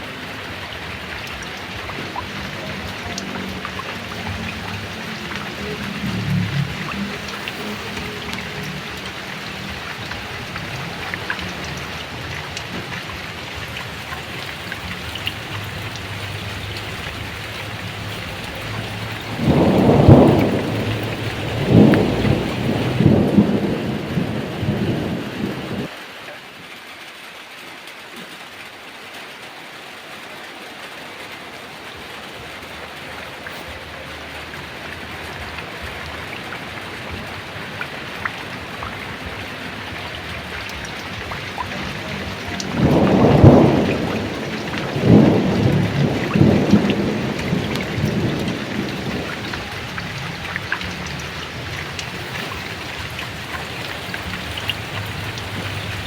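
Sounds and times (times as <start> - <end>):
heavy rain: 0.0 - 56.0
thunder rolling: 0.2 - 25.9, 34.5 - 56.0.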